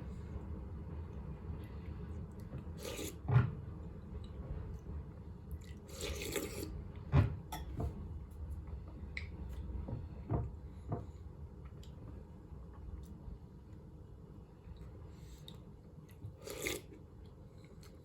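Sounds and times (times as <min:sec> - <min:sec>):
slurping soup: 0:02.7 - 0:03.3, 0:05.6 - 0:06.8, 0:16.2 - 0:17.0.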